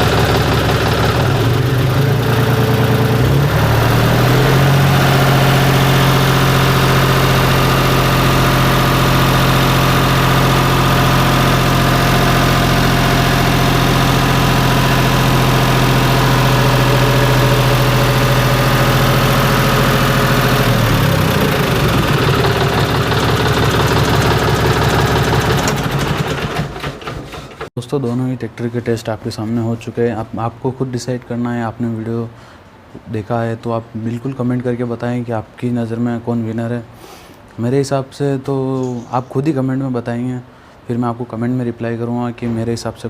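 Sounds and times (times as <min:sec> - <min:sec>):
diesel tractor engine running: 0:00.0 - 0:27.7.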